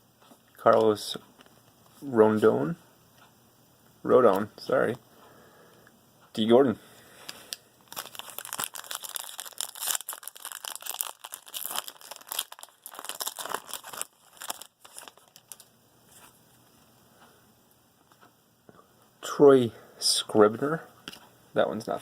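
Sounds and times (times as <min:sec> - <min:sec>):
card pack wrapper crinkling: 0:07.9 - 0:16.4.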